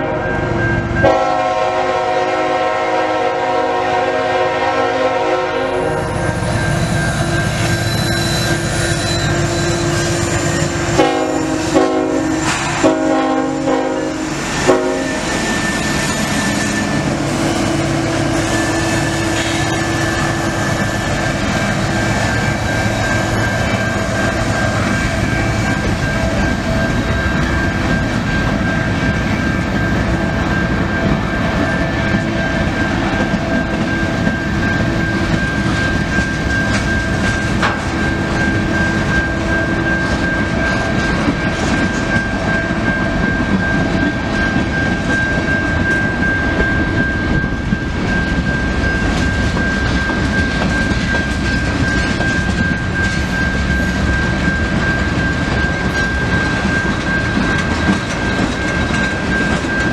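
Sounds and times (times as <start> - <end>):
train horn blasts: 0.0 - 6.4, 10.9 - 20.8
train rumbling and clattering past: 0.0 - 59.9.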